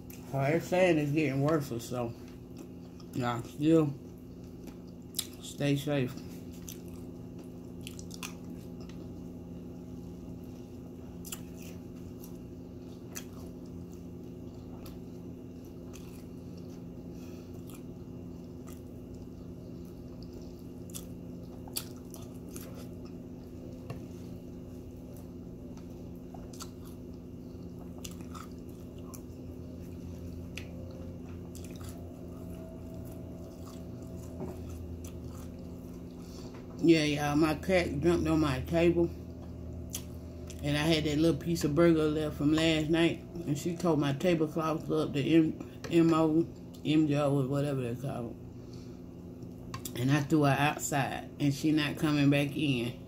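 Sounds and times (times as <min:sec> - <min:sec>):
chewing and crunching cereal: 0:00.0 - 0:09.3, 0:10.3 - 0:36.8
steady low hum: 0:00.0 - 0:53.0.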